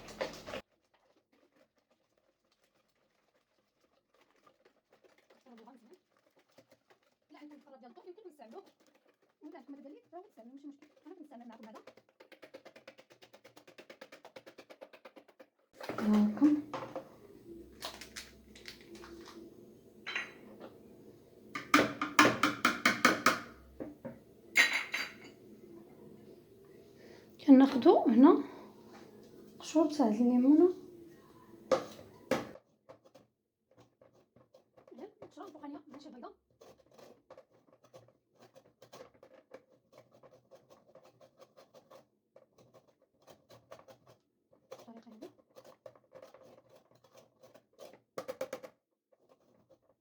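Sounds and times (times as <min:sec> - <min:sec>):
grater scraping lemon rind: 0:01.0 - 0:15.4, 0:32.8 - 0:50.0
utensil clinking against mixing bowl: 0:15.9 - 0:26.5.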